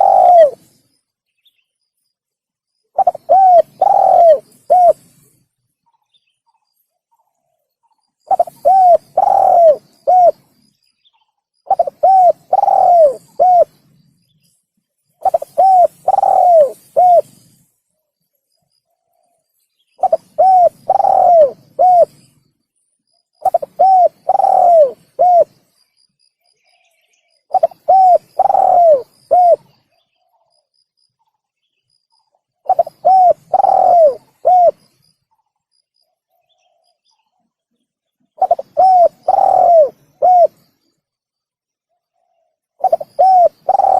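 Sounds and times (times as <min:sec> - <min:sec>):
dove cooing: 0:00.0 - 0:00.7, 0:03.0 - 0:05.3, 0:08.3 - 0:10.5, 0:11.7 - 0:13.8, 0:15.2 - 0:17.5, 0:20.0 - 0:22.2, 0:23.4 - 0:25.6, 0:27.5 - 0:29.8, 0:32.6 - 0:34.9, 0:38.4 - 0:40.6, 0:42.2 - 0:43.9.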